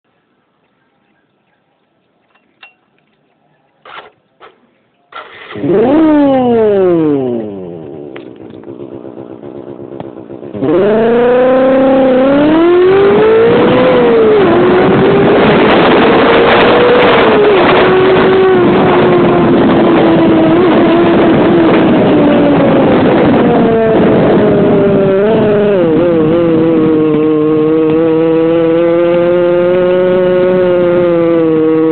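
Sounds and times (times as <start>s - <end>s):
motorcycle two-stroke engine revving: 3.8s - 31.9s.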